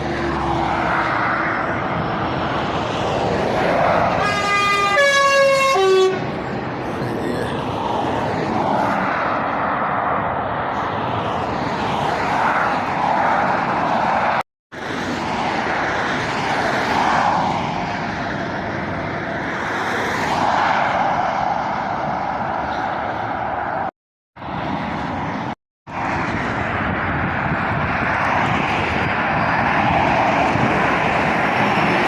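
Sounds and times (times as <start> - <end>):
road traffic passing at speed: 0.0 - 32.0.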